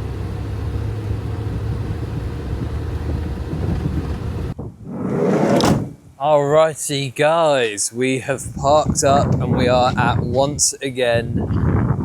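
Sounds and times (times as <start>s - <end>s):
van driving rumble: 0.0s - 4.6s
wind on microphone: 1.6s - 6.2s, 8.4s - 12.0s.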